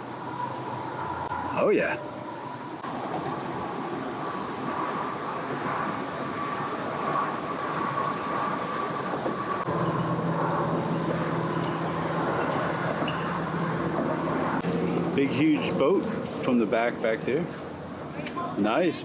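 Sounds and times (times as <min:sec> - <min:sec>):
high engine whine: 0:00.0 - 0:18.1
low steady engine hum: 0:00.0 - 0:19.0.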